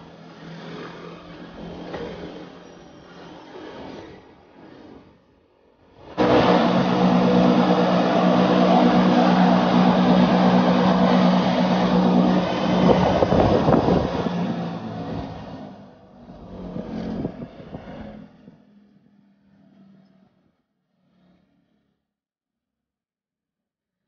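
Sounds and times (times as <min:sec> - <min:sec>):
train wheels rumbling: 0:06.0 - 0:17.8
electric motor and gear hum: 0:06.0 - 0:18.2.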